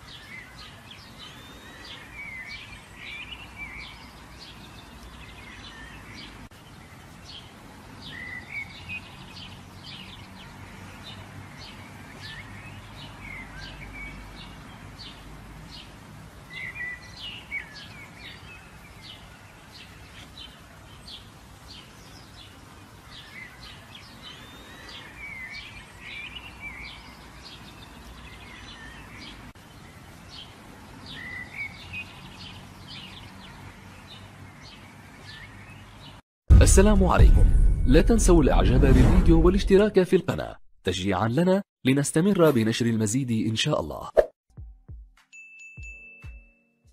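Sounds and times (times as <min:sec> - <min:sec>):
birds chirping and warbling: 0:00.0 - 0:36.2.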